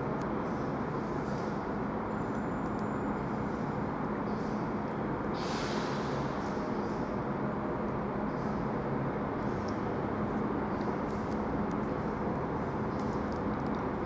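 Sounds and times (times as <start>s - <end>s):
brief hiss: 5.4s - 6.4s.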